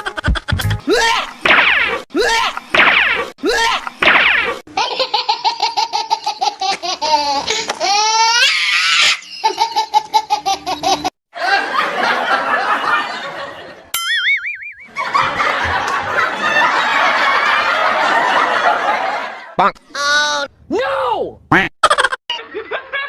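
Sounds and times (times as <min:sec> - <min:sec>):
people laughing hard: 0:09.0 - 0:13.9, 0:14.9 - 0:19.6, 0:21.8 - 0:23.0
short wavering tone: 0:14.0 - 0:15.0.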